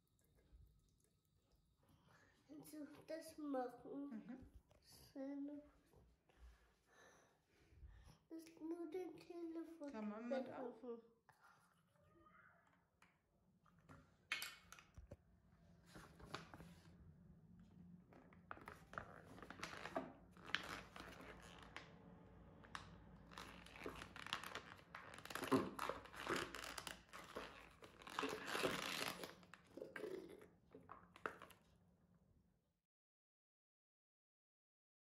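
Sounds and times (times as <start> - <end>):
paper crinkling and rustling: 15.9 - 16.8, 18.5 - 21.9, 22.7 - 29.7.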